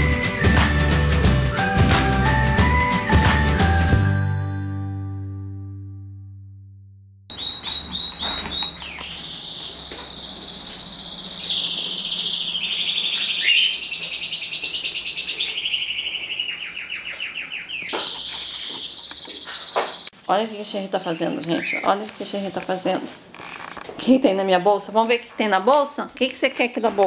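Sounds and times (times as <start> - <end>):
songbird trilling: 7.3 - 20.1, 21.3 - 22.0.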